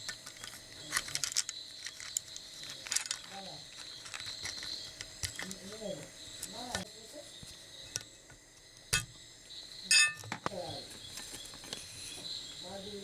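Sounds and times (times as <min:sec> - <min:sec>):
sharp metal knocks: 0:09.9 - 0:10.4.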